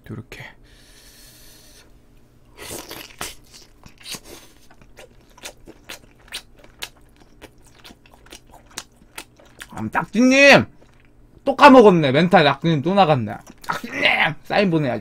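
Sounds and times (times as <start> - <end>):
person chewing meat: 2.6 - 11.4, 13.2 - 13.9
mouth smacks and small crunches: 2.6 - 11.5, 13.2 - 13.8.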